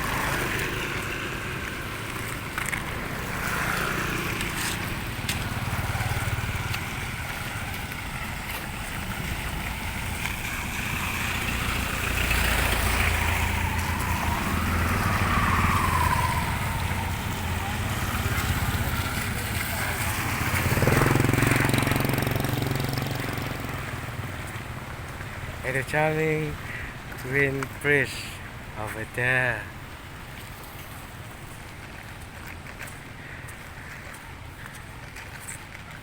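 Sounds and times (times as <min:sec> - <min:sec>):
low traffic rumble: 0:00.0 - 0:36.0
vehicles passing: 0:00.0 - 0:36.0.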